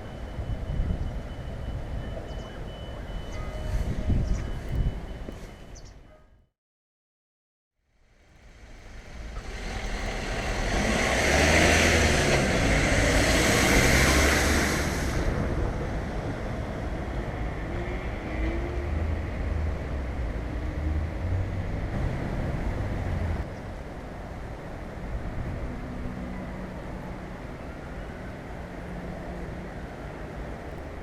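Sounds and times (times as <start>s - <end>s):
traffic rumble: 7.8s - 31.0s
vehicle passing: 8.4s - 23.4s.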